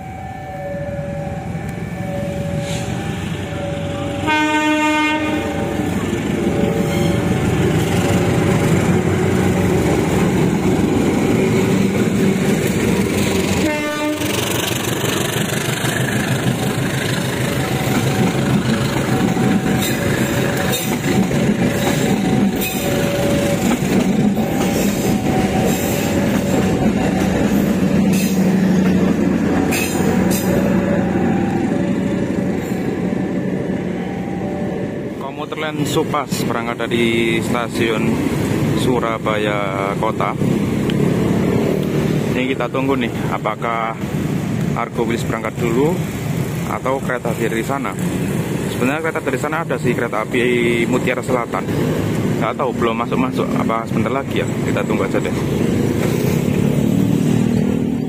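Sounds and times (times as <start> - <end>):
level crossing bell ringing: 0.0 - 4.3
train rolling past: 0.0 - 58.0
locomotive horn: 3.9 - 6.1, 13.5 - 14.6
wheels clacking over rail joints: 5.9 - 32.7.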